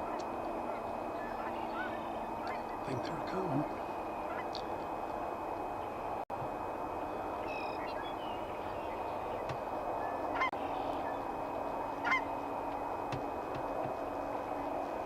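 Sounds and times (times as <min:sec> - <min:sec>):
geese honking: 0:00.0 - 0:04.6, 0:10.0 - 0:12.8.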